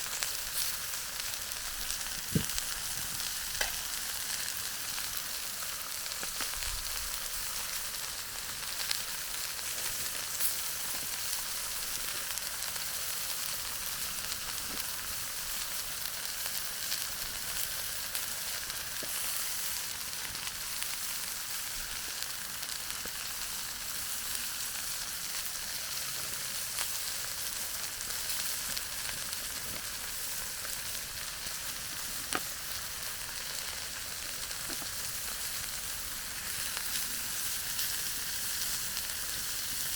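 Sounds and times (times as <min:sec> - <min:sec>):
chicken sizzling in a pan: 0:00.0 - 0:39.9.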